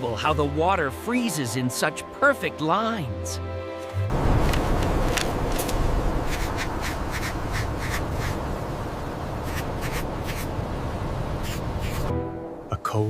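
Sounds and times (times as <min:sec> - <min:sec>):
steady rushing noise: 0:04.1 - 0:12.1.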